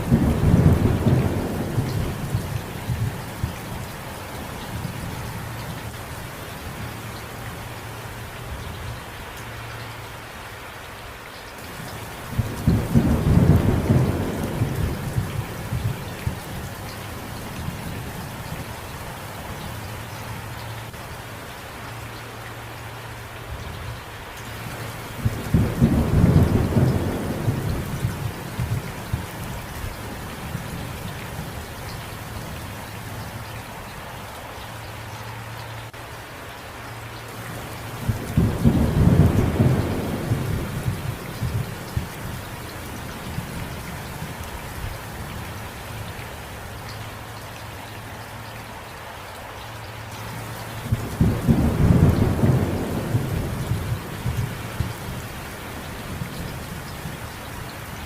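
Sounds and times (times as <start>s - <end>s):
low rolls of thunder: 0.0s - 5.2s, 12.2s - 18.8s, 25.0s - 31.6s, 37.5s - 44.9s, 50.8s - 57.2s
steady rain falling: 0.0s - 58.0s.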